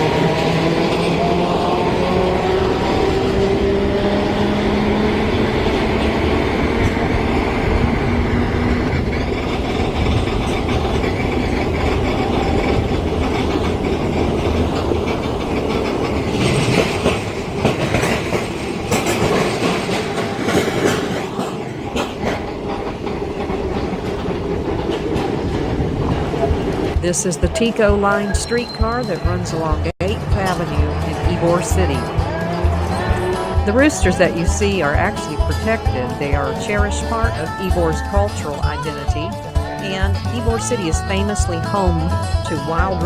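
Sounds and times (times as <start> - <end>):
train rolling rumble: 0.0 - 43.0
wheels clacking over rail joints: 0.0 - 43.0.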